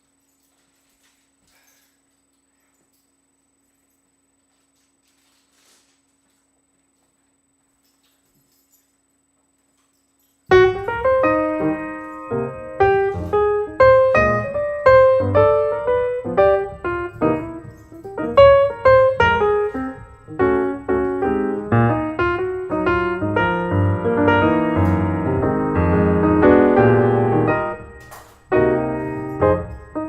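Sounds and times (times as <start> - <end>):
piano melody: 10.5 - 30.0.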